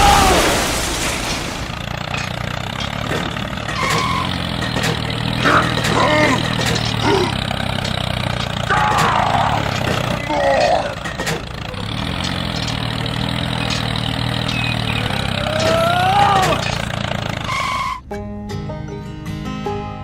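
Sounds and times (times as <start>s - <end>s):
voices: 0.0s - 1.2s, 1.8s - 18.0s
engine idling: 0.0s - 18.5s.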